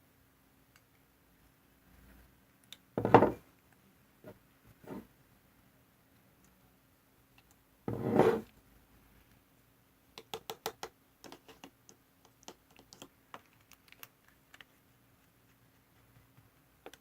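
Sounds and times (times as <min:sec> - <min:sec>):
light clicks and taps: 0:16.1 - 0:17.0.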